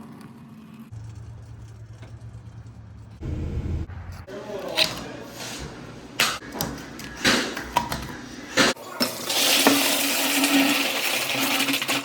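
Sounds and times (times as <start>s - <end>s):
low hum: 0.8s - 4.3s.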